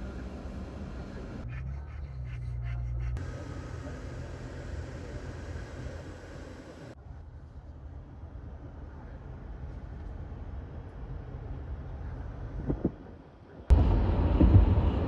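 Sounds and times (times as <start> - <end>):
low rumble: 13.7 - 15.0.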